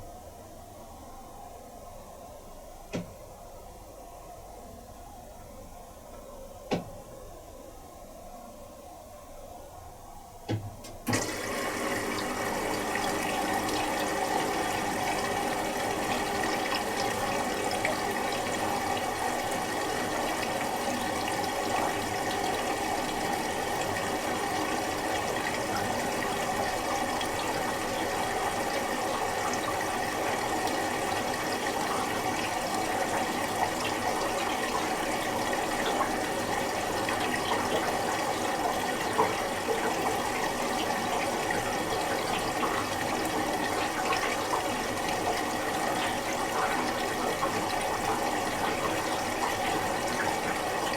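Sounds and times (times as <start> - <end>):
running water rushing: 11.0 - 50.9.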